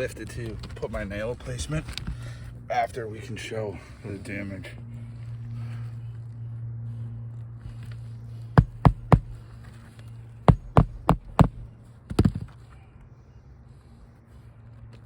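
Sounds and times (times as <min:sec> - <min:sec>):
steady low hum: 0:00.0 - 0:15.0
hammer striking roofing nail: 0:08.6 - 0:09.4, 0:10.5 - 0:12.5.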